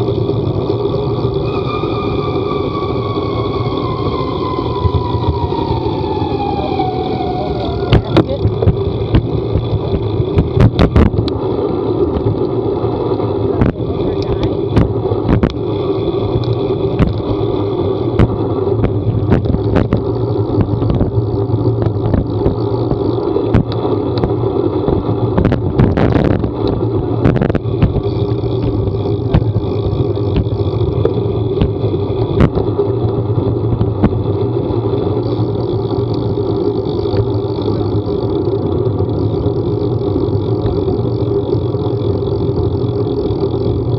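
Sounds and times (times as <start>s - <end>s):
vehicle engine drone: 0.0s - 43.9s
sharp ticks and knocks: 7.9s - 11.4s, 13.6s - 15.6s, 16.3s - 17.4s, 18.1s - 34.5s, 35.3s - 43.9s.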